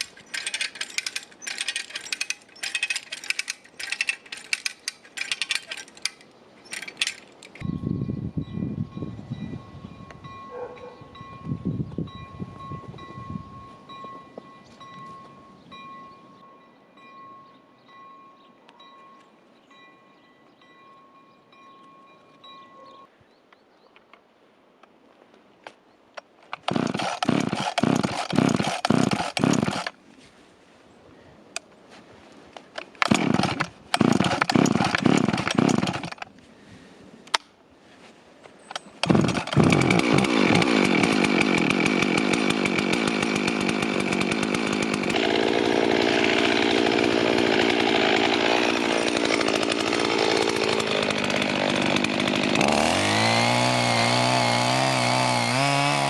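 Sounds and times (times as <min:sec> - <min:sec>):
chainsaw engine running: 0:00.0 - 0:07.7, 0:26.6 - 0:30.0, 0:33.0 - 0:36.2, 0:39.0 - 0:56.0
chainsaw pull-start pulsing: 0:00.0 - 0:07.7, 0:26.5 - 0:30.0, 0:32.8 - 0:36.3, 0:38.7 - 0:56.0.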